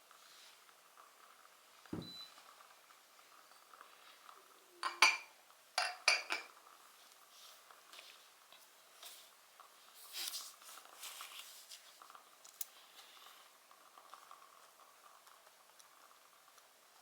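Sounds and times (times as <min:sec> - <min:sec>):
wood fire crackling: 0:00.0 - 0:04.8, 0:06.5 - 0:17.0.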